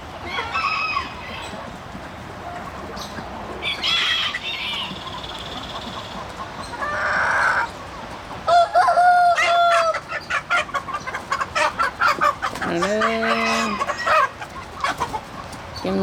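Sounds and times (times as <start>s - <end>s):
chickens calling: 0.0s - 16.0s
rooster crowing: 8.5s - 10.0s.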